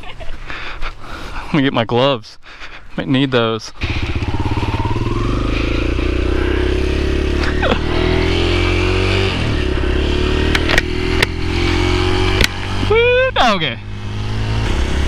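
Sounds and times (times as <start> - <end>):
dirt bike engine idling: 3.7 - 8.0.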